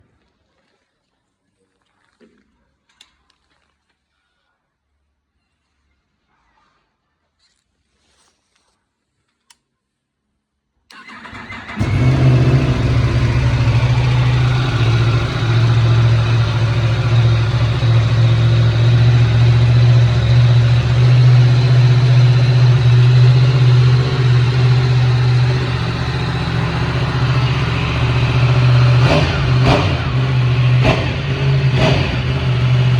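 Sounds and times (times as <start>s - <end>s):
engine cranking: 10.9s - 32.9s
motorcycle engine idling: 11.0s - 32.9s.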